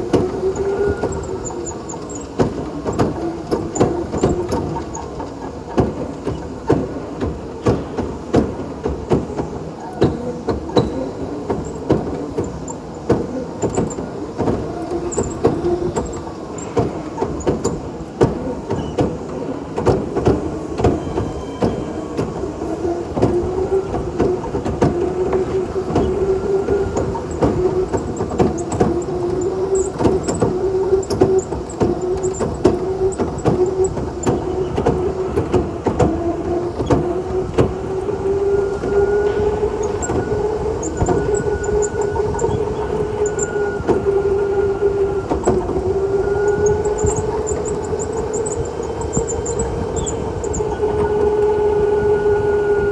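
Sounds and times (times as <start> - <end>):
electric go-kart motor whine: 0.0 - 5.0, 20.8 - 52.9
kart clicks and knocks: 0.0 - 51.6.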